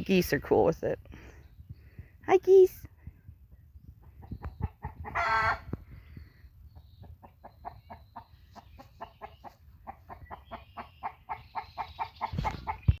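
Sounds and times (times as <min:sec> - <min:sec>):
poultry calling: 0:04.6 - 0:05.8.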